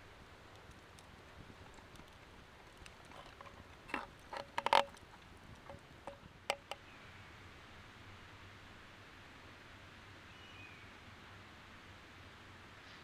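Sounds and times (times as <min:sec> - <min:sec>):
short clicks and knocks: 0:03.0 - 0:06.8.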